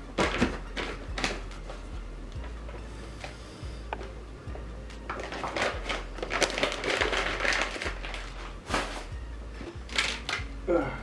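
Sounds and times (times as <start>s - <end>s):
low steady hum: 0.0s - 11.0s
food wrapping crinkling and rustling: 5.1s - 9.2s, 9.9s - 10.4s.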